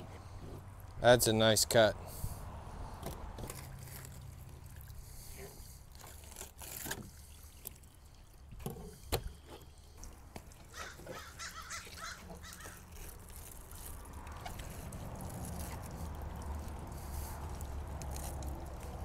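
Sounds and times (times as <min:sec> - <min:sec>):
running water rushing: 0:05.8 - 0:19.0
bird calling: 0:10.7 - 0:12.9.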